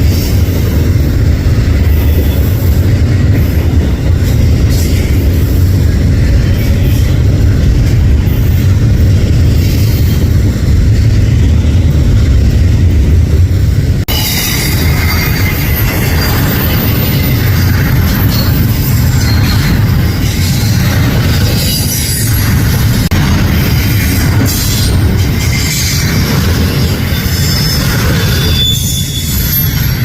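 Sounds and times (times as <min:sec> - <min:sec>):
freight train rolling past: 0:00.0 - 0:30.0
high-pitched wheel squeal: 0:14.1 - 0:22.6, 0:25.4 - 0:30.0.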